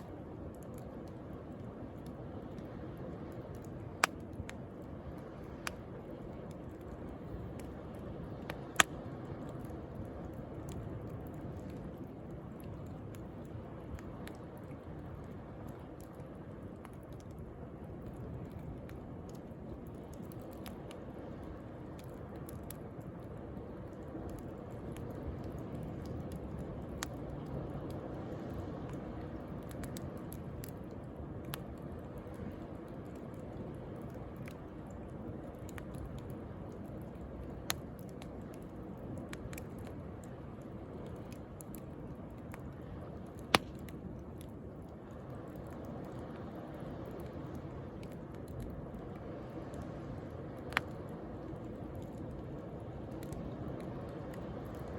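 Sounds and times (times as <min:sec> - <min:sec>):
bonfire crackling and popping: 0:00.0 - 0:54.9
sharp fire pops: 0:43.4 - 0:44.0.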